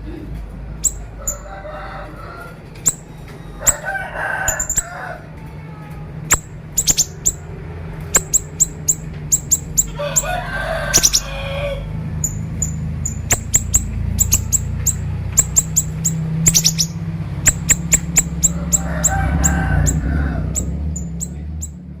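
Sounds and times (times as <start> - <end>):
bird singing rapid chips: 0.8 - 1.5, 2.8 - 5.0, 6.2 - 21.9
rooster crowing: 0.8 - 5.5, 6.3 - 12.4, 13.2 - 20.9
steady low hum: 4.5 - 22.0.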